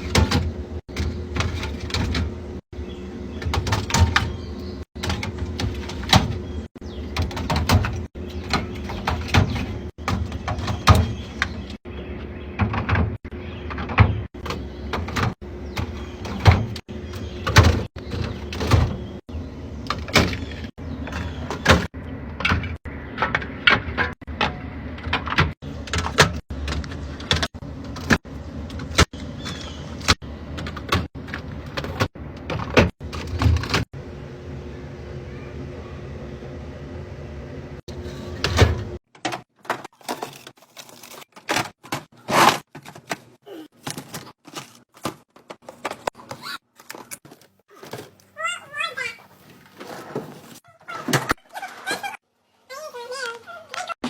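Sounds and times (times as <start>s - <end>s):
refrigerator hum: 0.0s - 52.2s
plastic containers clacking: 38.0s - 48.4s.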